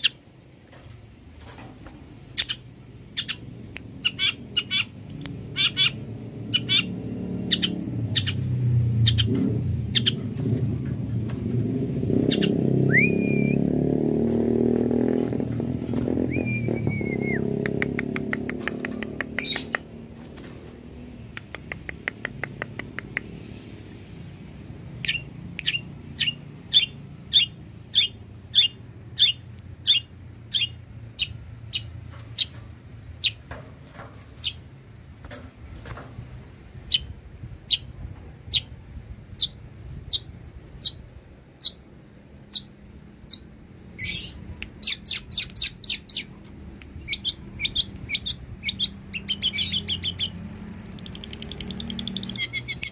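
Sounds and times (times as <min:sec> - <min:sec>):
bird chirping sharply: 0:04.0 - 0:08.4, 0:09.0 - 0:10.2, 0:12.2 - 0:13.6, 0:25.1 - 0:32.5, 0:47.0 - 0:52.9.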